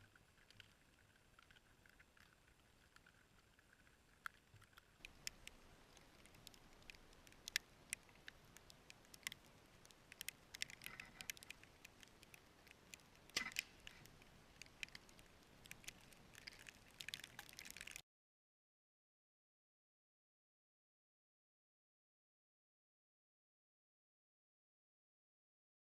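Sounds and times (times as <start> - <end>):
crackle: 0.0 - 18.0
faint ticking and pattering: 0.0 - 18.0.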